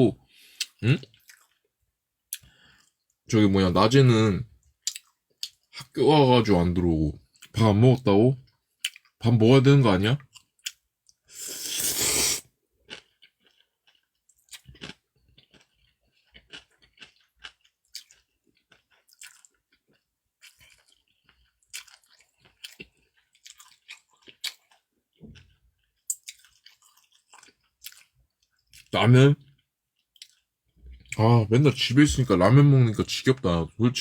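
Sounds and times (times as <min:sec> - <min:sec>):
person chewing food: 0:00.5 - 0:01.7, 0:02.3 - 0:03.1, 0:04.8 - 0:05.7, 0:10.3 - 0:28.9, 0:29.6 - 0:31.2.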